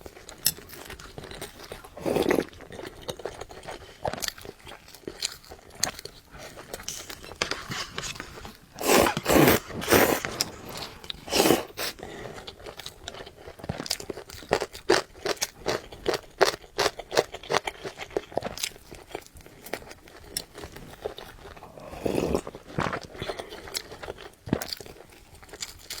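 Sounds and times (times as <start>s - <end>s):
person chewing crunchy food: 0.0s - 26.0s.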